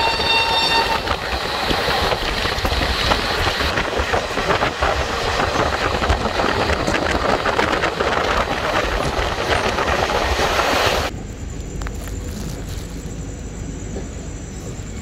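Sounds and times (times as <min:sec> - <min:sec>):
train wheels clattering on rails: 0:00.0 - 0:11.1
steady low rumble: 0:01.0 - 0:15.0.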